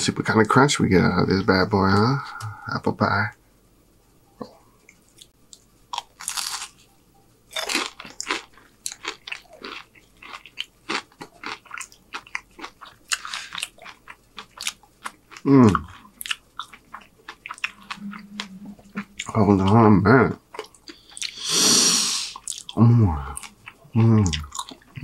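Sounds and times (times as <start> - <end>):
crunchy chewing: 5.1 - 6.9, 7.5 - 18.0, 22.3 - 25.0.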